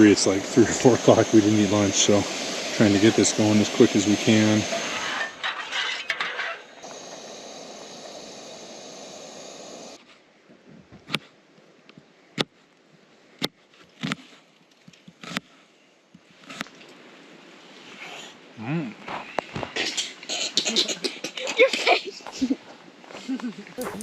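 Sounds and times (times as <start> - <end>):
meat sizzling: 0.0 - 5.2, 6.8 - 10.0.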